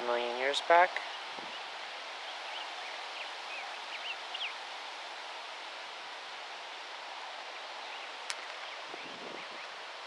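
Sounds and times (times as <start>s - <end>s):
steady outdoor hiss: 0.0s - 10.0s.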